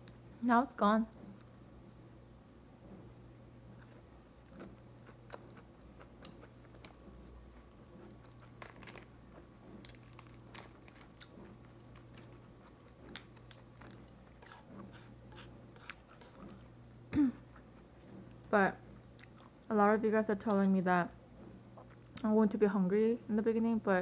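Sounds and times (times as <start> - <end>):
lettuce crunching while chewing: 3.8 - 16.7.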